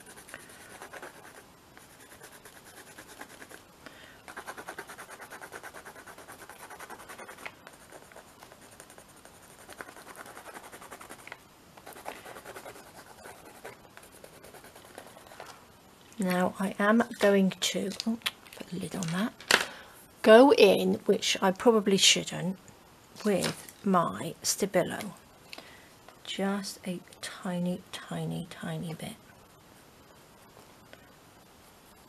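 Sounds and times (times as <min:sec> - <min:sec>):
pencil scratching on paper: 0:00.0 - 0:03.6, 0:04.3 - 0:15.4.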